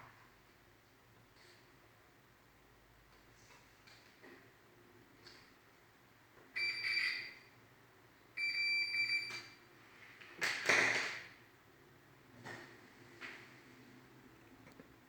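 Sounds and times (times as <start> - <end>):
microwave buzzer beeping: 6.6 - 7.4, 8.4 - 9.6.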